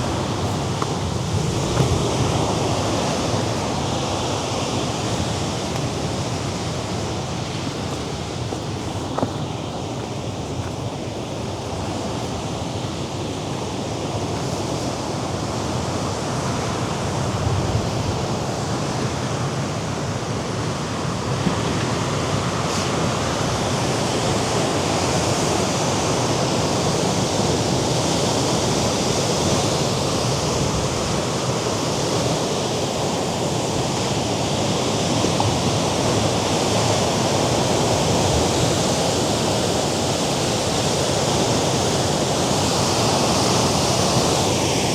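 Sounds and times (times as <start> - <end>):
waves breaking against rocks: 0.0 - 17.7.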